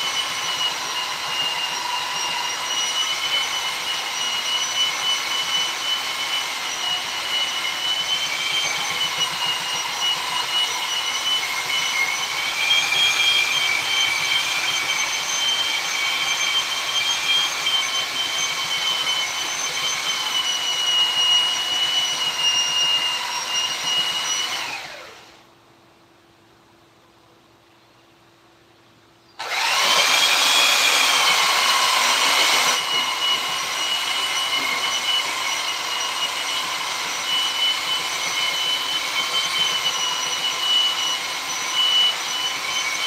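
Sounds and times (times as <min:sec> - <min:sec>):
power tool whining: 0:00.0 - 0:25.4, 0:29.4 - 0:43.0.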